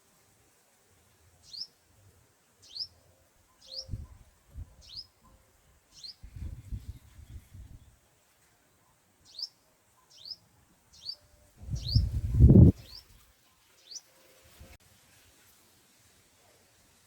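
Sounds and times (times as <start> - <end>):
bird chirping: 1.4 - 1.8, 2.6 - 7.8, 8.8 - 14.1
low rustle or flutter: 6.2 - 8.0, 11.6 - 13.4.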